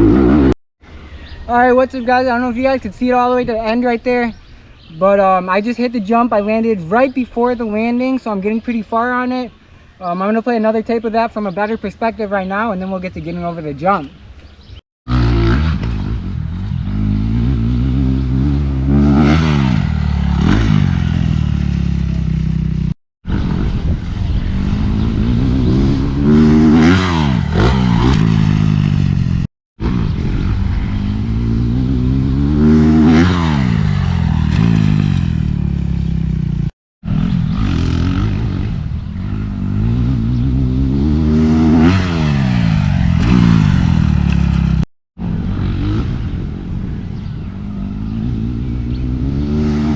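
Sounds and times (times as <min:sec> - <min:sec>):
dirt bike engine revving: 0:00.0 - 0:00.6, 0:15.1 - 0:23.8, 0:24.6 - 0:46.6, 0:47.8 - 0:49.9.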